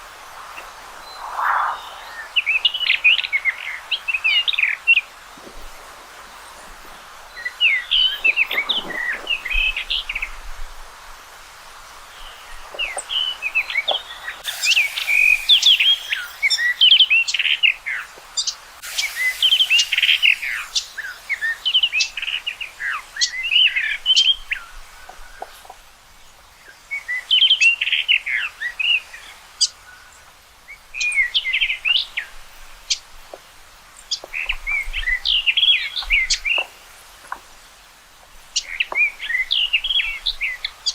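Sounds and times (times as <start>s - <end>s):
bird singing warbled notes: 14.4s - 18.0s, 18.8s - 23.4s.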